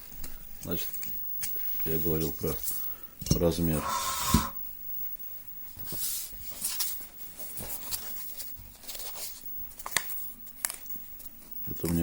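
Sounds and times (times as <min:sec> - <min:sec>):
brief hum-like tone: 0:03.7 - 0:04.6.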